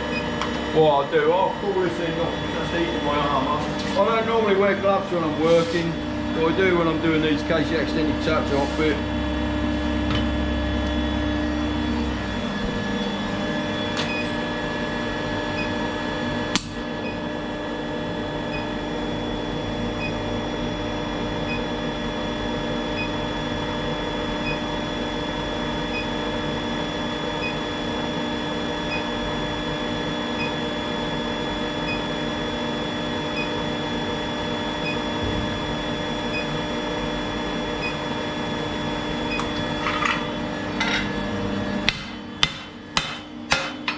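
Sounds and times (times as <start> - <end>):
deeper hum: 0.0 - 21.4, 34.0 - 43.5
electrical hum: 0.0 - 43.9.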